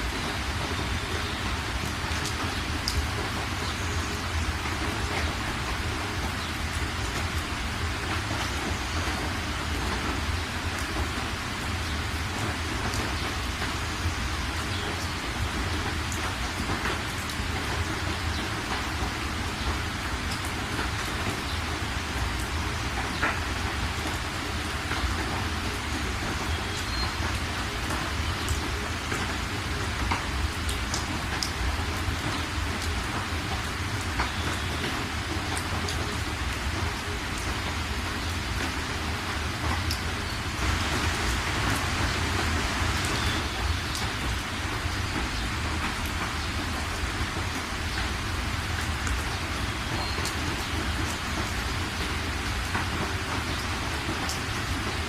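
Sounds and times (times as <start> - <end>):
rain drops ticking: 0.0 - 55.0
steady rain hiss: 0.0 - 55.0.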